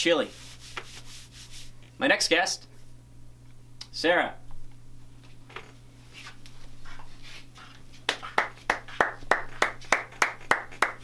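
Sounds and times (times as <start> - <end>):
person clapping: 8.1 - 11.0.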